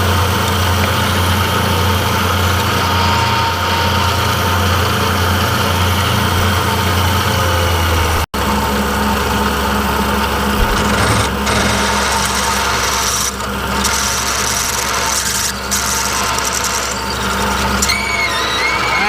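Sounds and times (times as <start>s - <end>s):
machine humming: 0.0s - 19.0s
metal cutting rasp: 10.6s - 19.0s.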